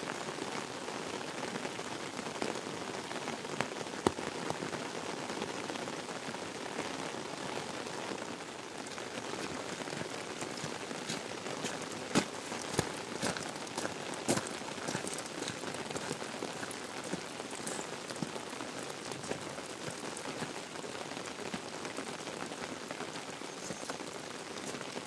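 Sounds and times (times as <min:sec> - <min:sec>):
steady rain falling: 0:00.0 - 0:25.0
sharp taps of raindrops: 0:03.6 - 0:04.6, 0:08.8 - 0:22.6.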